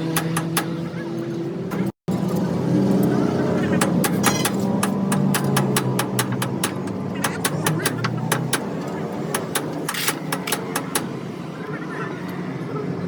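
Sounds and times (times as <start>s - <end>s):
engine running: 0.0s - 13.0s
sharp clicks or knocks: 3.8s - 11.2s.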